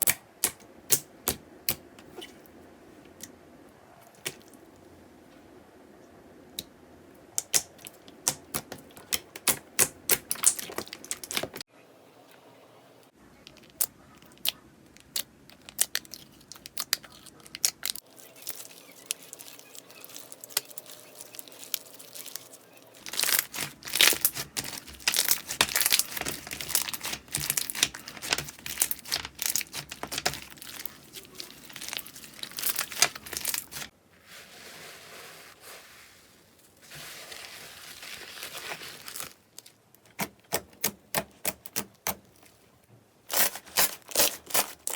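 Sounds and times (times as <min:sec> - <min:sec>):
slime crackling and popping: 0:07.4 - 0:11.6, 0:13.6 - 0:33.9.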